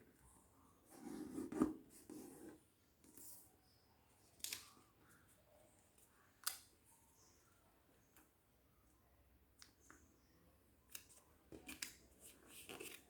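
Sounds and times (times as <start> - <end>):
paper snapping: 4.4 - 4.7
crisp paper clicks: 4.4 - 4.8.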